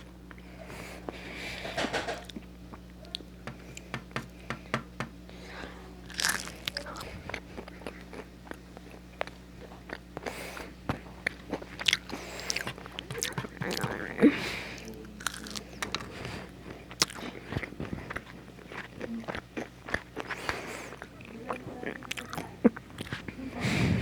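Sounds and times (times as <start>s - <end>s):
crunchy fries chewing: 5.2s - 23.8s.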